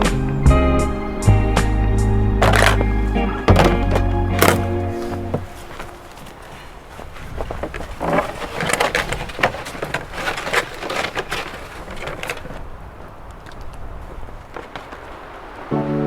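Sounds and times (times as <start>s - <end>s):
camping gear rustling and scraping: 0.0s - 16.0s
knocks and clicks: 1.6s - 6.0s.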